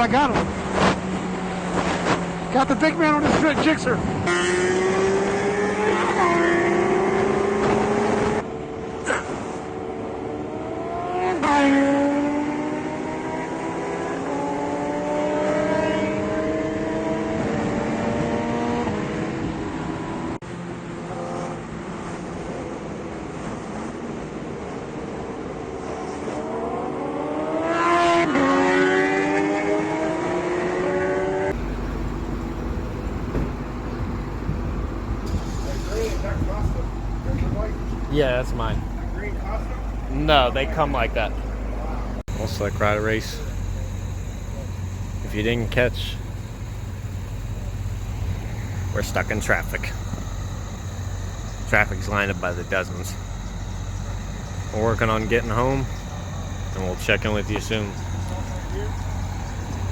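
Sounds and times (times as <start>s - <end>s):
motorcycle engine accelerating: 4.2s - 8.4s, 27.0s - 59.9s
low steady rumble: 31.6s - 59.9s.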